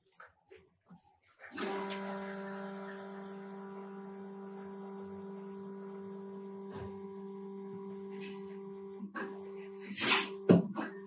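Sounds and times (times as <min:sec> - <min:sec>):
electrical machine hum: 0:01.5 - 0:11.0.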